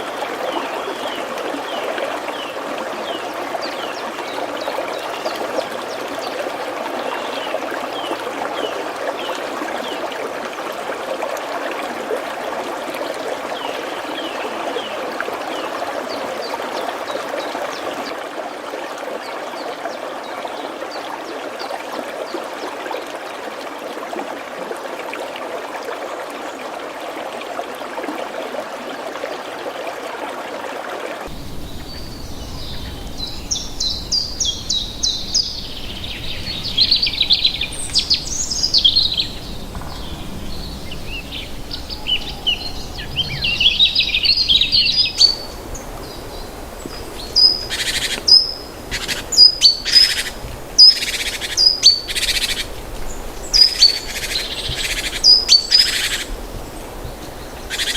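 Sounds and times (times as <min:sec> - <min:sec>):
birds singing: 0:00.0 - 0:08.8, 0:31.3 - 0:56.4, 0:57.1 - 0:57.9
running water rushing: 0:00.0 - 0:57.9
loud sharp bird calls: 0:31.3 - 0:52.8, 0:57.6 - 0:57.9.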